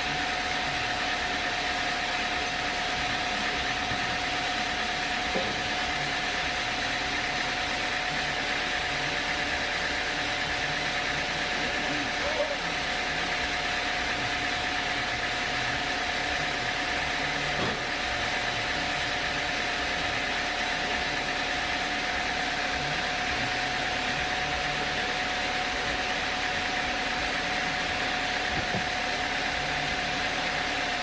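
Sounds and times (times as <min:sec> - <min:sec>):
sawmill machinery whining: 0:00.0 - 0:31.0.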